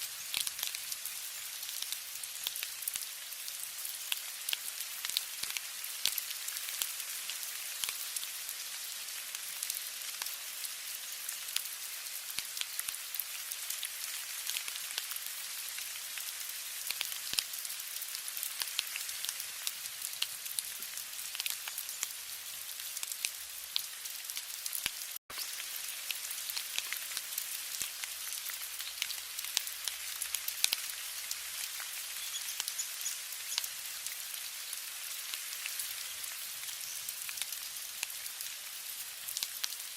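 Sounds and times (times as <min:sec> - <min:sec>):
rain falling: 0:00.0 - 0:39.9
raindrop ticks: 0:27.7 - 0:30.9, 0:39.3 - 0:39.8.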